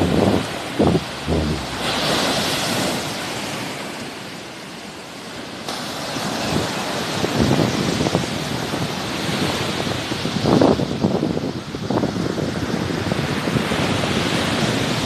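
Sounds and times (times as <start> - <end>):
wind rumble on microphone: 0.0 - 3.1
sea waves breaking on shore: 0.0 - 10.3.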